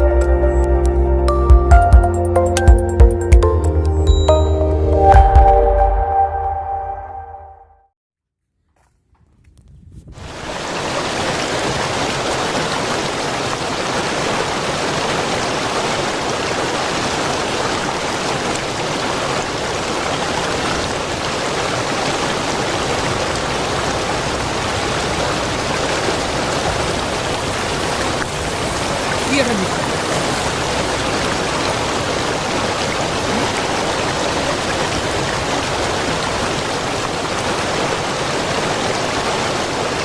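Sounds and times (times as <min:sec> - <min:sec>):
river water rushing: 0:10.2 - 0:40.0.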